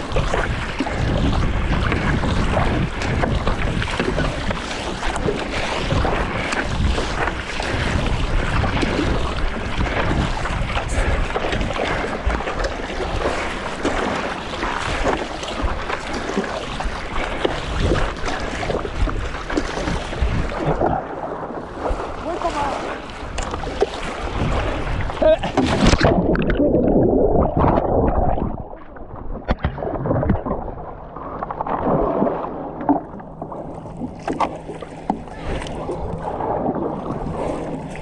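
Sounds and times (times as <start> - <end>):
wind buffeting microphone: 0.0 - 29.4
choppy water splashing: 0.0 - 38.0.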